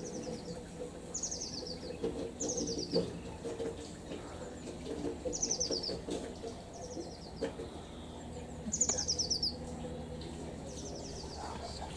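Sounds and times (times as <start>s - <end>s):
songbird trilling: 0.0s - 3.0s, 6.7s - 11.8s.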